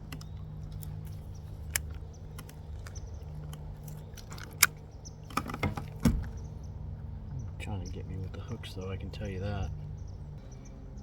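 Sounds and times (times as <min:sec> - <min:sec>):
sharp clicks of handling: 0:00.0 - 0:06.1.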